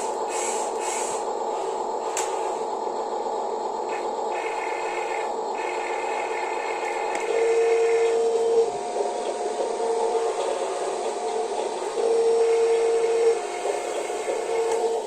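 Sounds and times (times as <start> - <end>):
higher louder motor whine: 1.4 - 15.0
small electric motors whining: 3.8 - 15.0.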